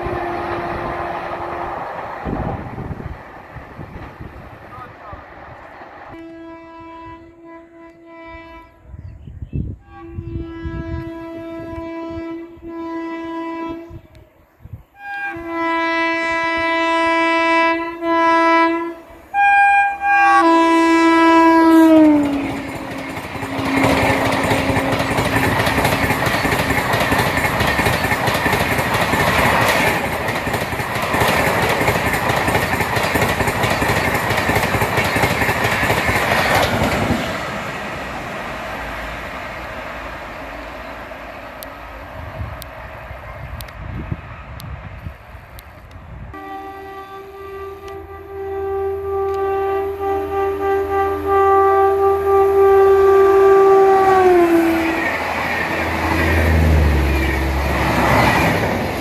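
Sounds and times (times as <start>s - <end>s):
locomotive horn blasts: 0.0s - 1.8s, 6.1s - 9.0s, 9.6s - 14.3s, 15.0s - 26.6s, 46.4s - 57.6s
train wheels rolling past: 0.0s - 8.7s, 15.0s - 59.0s.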